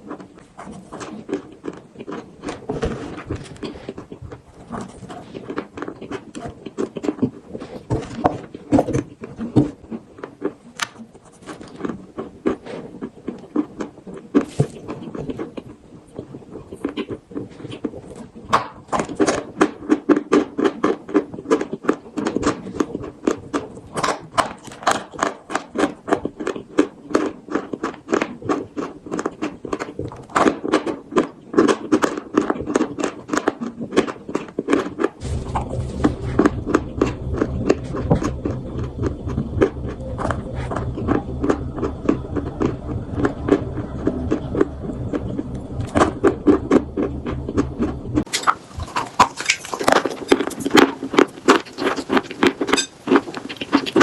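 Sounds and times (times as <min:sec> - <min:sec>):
crunching and chewing chalk: 0:00.0 - 0:54.0
steady low hum: 0:35.2 - 0:54.0.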